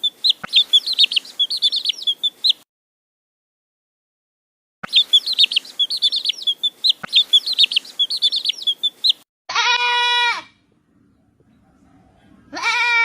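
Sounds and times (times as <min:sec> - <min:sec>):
small bird chirping: 0:00.0 - 0:02.6, 0:04.8 - 0:09.3
goat bleating: 0:09.5 - 0:10.6, 0:12.5 - 0:13.0.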